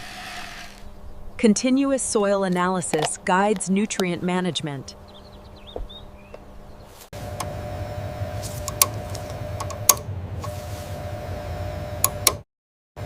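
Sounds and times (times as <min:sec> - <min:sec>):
machine-like hum with rumble: 0:04.9 - 0:12.4
sharp clicks: 0:08.6 - 0:10.1, 0:12.0 - 0:12.4.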